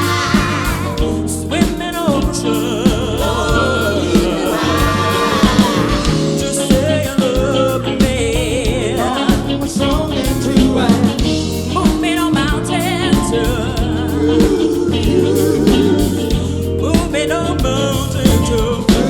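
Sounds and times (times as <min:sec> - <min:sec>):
singers holding long notes: 0:00.0 - 0:16.8
live soul band playing: 0:00.0 - 0:19.0.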